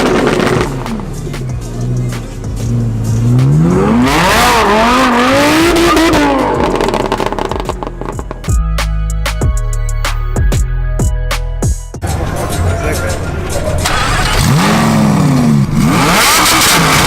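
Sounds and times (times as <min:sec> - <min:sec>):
car engine revving hard: 0:00.0 - 0:01.1, 0:02.7 - 0:08.1, 0:13.8 - 0:17.0
tire screech: 0:12.0 - 0:17.0.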